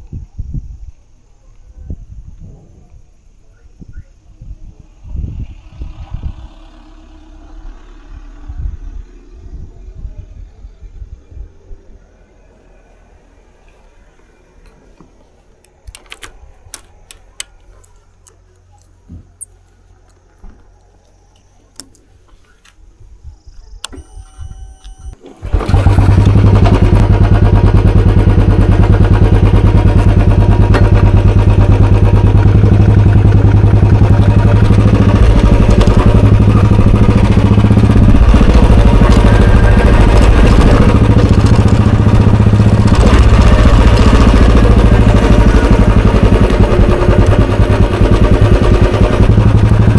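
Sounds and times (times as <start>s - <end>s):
motorcycle engine idling: 13.2s - 49.9s
starter motor whirr: 23.8s - 49.9s.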